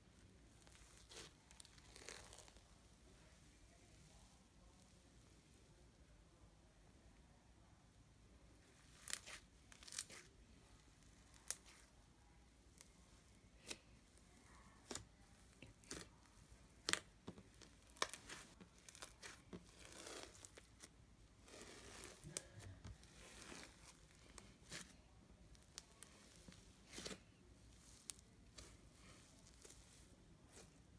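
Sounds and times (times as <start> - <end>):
slime crackling: 8.9 - 10.3, 11.0 - 11.9, 13.6 - 30.9.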